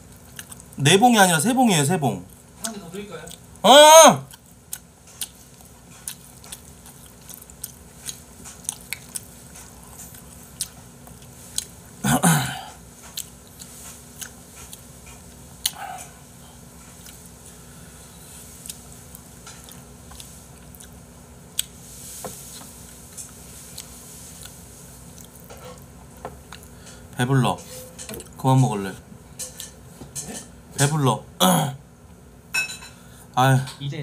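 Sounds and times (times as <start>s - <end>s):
person chewing noodles: 0.0s - 0.8s, 3.3s - 3.6s, 4.2s - 27.2s.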